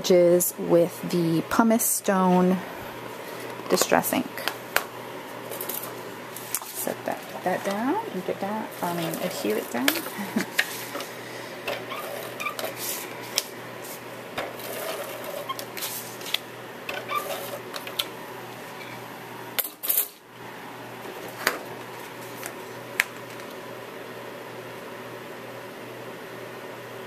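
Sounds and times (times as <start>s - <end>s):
paper rustling: 11.8s - 16.4s, 21.1s - 22.6s.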